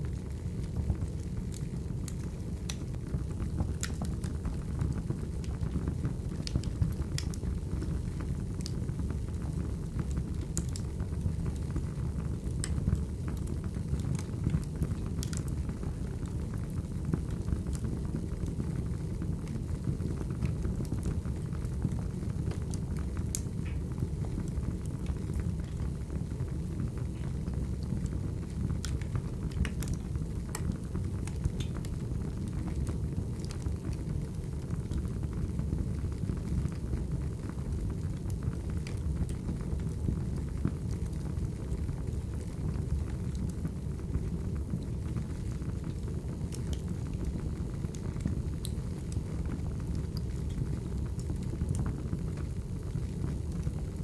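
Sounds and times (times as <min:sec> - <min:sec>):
low rumble of flames: 0:00.0 - 0:54.0
wood fire crackling: 0:00.0 - 0:54.0
sharp pops and snaps: 0:31.3 - 0:31.9.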